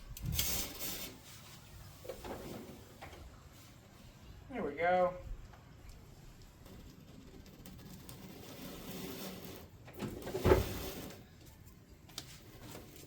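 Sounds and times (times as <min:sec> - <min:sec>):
handling and rustling noises: 0:05.9 - 0:13.0.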